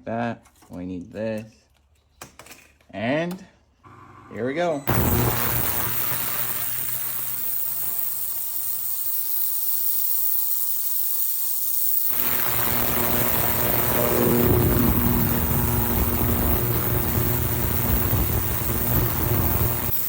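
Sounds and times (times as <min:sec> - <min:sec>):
ultrasonic cleaner humming: 0:04.9 - 0:10.1, 0:12.0 - 0:20.0.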